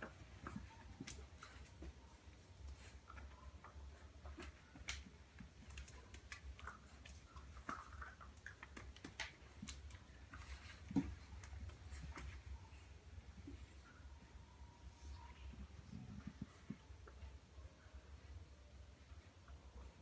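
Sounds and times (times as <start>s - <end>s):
puppy paws clicking and tapping: 0.0s - 12.8s
low steady hum: 0.0s - 20.0s.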